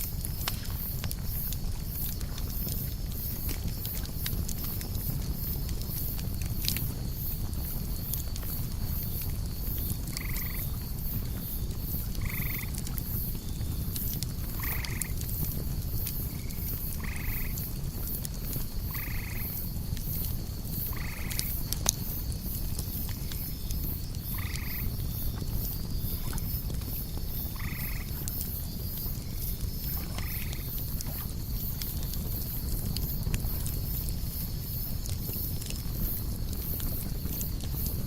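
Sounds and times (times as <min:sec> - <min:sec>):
campfire crackling and popping: 0:00.0 - 0:38.0
crickets chirring: 0:00.0 - 0:38.0
night animal call: 0:12.2 - 0:12.8, 0:18.9 - 0:19.5, 0:24.3 - 0:24.9.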